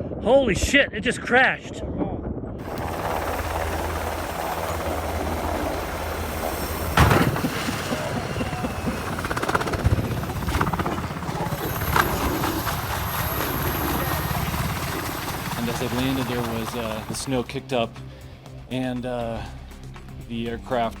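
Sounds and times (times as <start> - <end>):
helicopter rotor throb: 2.6 - 20.9
loud sharp thump: 6.9 - 8.0.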